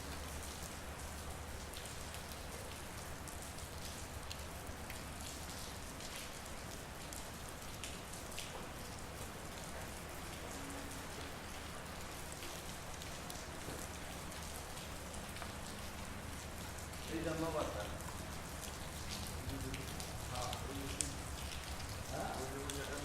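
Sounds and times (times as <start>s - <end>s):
raindrops ticking: 0.0s - 23.0s
steady rain falling: 0.0s - 23.0s.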